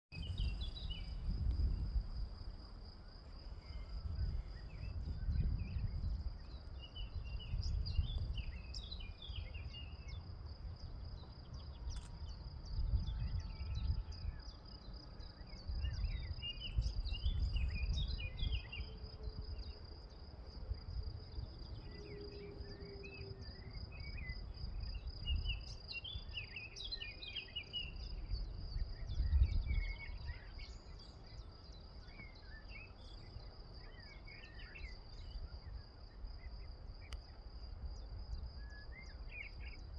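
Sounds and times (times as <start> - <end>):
wind buffeting microphone: 0.1 - 22.1, 23.4 - 26.3, 27.9 - 31.5
small birds chirping: 0.2 - 1.8, 3.6 - 19.0
crickets trilling: 0.2 - 39.9.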